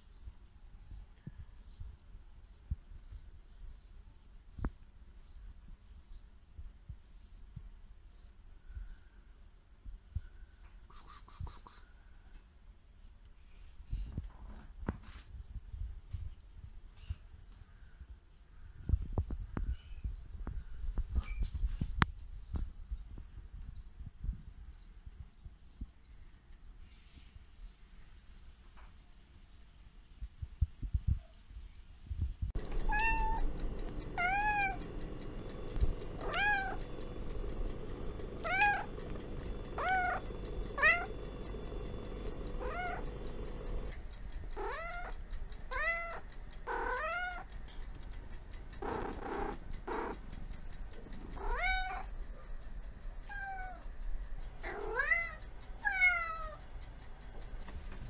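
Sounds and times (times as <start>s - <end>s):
cat meowing: 32.8s - 33.5s, 34.2s - 34.8s, 36.2s - 36.8s, 38.4s - 38.9s, 39.8s - 40.2s, 44.6s - 47.5s.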